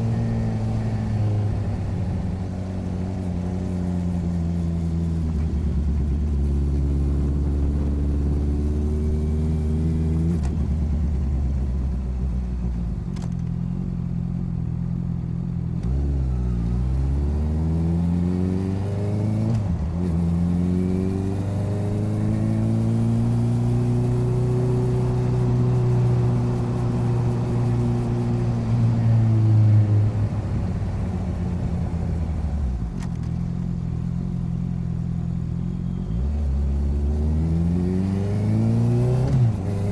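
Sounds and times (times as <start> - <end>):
motorcycle engine revving: 15.8 - 30.8, 35.7 - 39.9.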